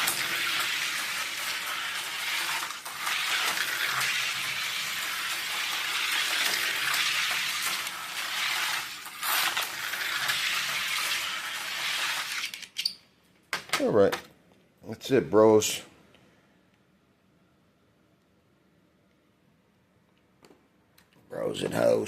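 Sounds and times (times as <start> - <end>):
slot car motor whirring: 0.0 - 12.6.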